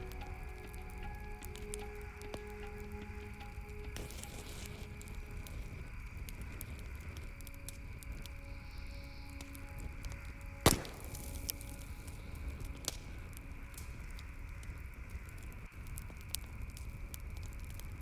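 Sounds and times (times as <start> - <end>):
campfire snaps and pops: 0.0 - 18.0
fire low rumble: 0.0 - 18.0
loud sharp fire pop: 10.7 - 11.6.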